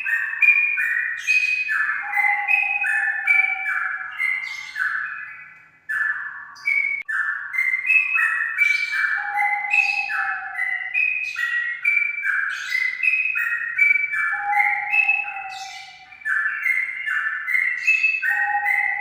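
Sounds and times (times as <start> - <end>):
bird singing whistled notes: 0.0 - 19.0.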